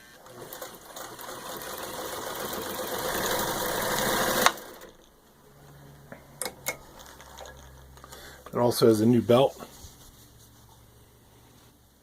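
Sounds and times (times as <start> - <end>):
sewing machine stitching: 0.0 - 5.1.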